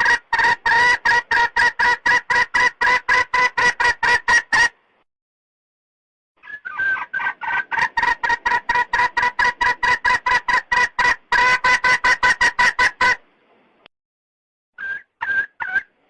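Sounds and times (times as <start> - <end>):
hen clucking: 0.0 - 4.8, 6.4 - 13.2, 14.8 - 16.0.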